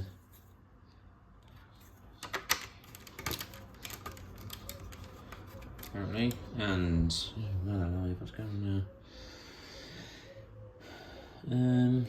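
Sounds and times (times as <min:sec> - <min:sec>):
plastic bricks clicking: 0:02.2 - 0:06.0.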